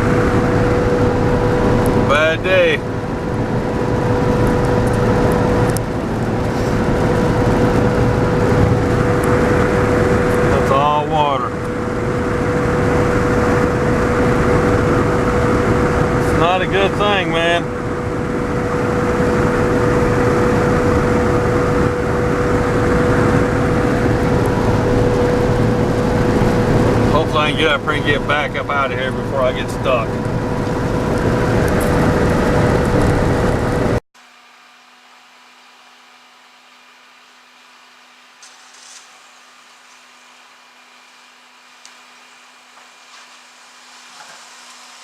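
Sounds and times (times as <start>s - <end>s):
steady whining tone: 0.0s - 34.0s
truck engine and road rumble: 0.0s - 34.0s
steady hum: 0.0s - 45.0s.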